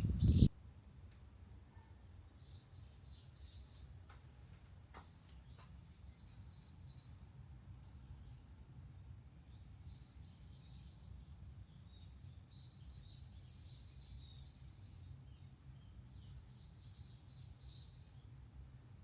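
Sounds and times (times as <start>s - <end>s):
low background rumble: 0.0s - 0.5s
faint bird singing: 0.0s - 19.0s.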